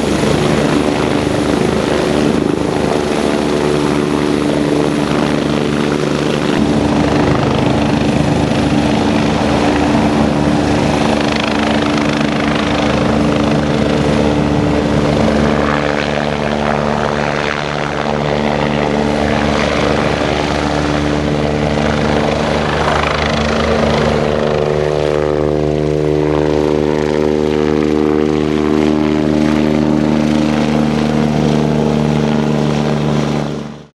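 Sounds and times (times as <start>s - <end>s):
helicopter rotor and turbine drone: 0.0s - 33.9s.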